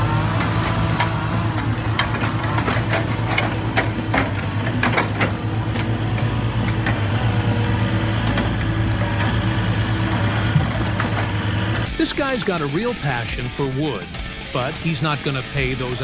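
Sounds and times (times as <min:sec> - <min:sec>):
engine idling: 0:00.0 - 0:16.0
clicks and knocks: 0:00.3 - 0:11.9.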